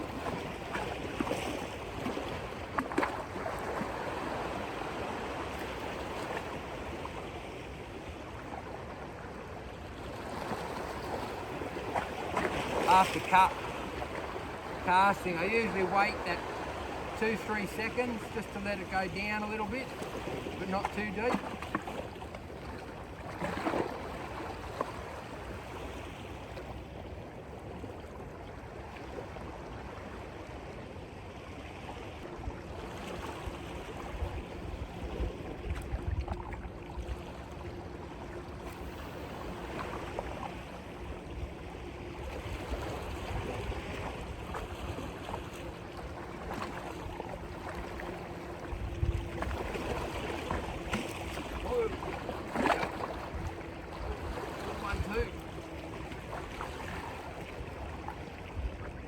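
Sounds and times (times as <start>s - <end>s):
surf against rocks: 10.1s - 26.7s, 32.9s - 58.7s
wind buffeting microphone: 48.5s - 52.4s.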